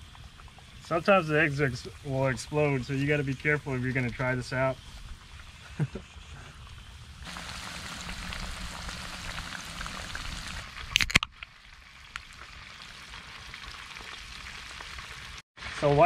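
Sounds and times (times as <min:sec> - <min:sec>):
food sizzling in hot oil: 0:06.6 - 0:10.9, 0:11.5 - 0:16.0.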